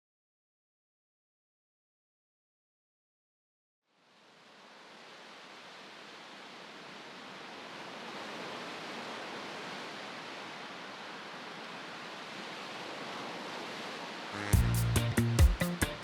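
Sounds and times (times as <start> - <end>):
ocean surf rushing: 4.1 - 14.6
music with sharp beats: 14.5 - 16.0.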